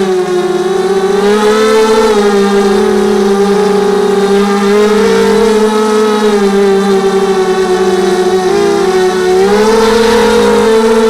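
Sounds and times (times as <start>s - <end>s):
drone propellers whining: 0.0s - 11.0s.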